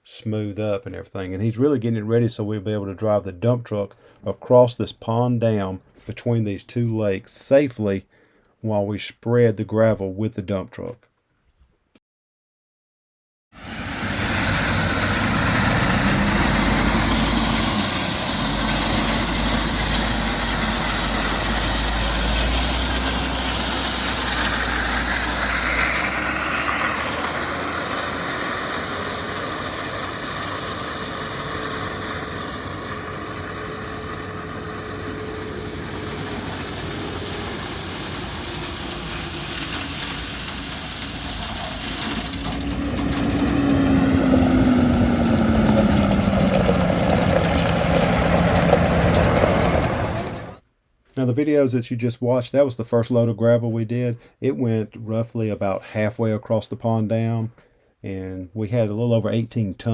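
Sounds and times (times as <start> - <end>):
heavy diesel engine rumbling: 13.6 - 50.6.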